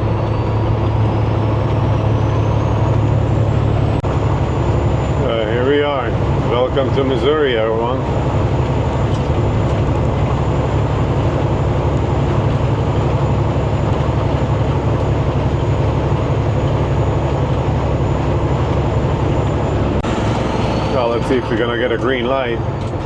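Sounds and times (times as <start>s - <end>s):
road noise: 0.0s - 23.0s
truck engine drone: 0.0s - 23.0s.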